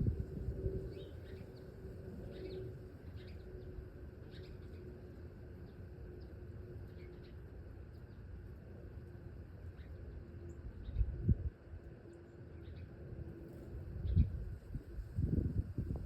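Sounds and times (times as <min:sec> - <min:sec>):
small birds chip calls: 0:00.9 - 0:08.7, 0:09.4 - 0:11.2, 0:12.0 - 0:13.0.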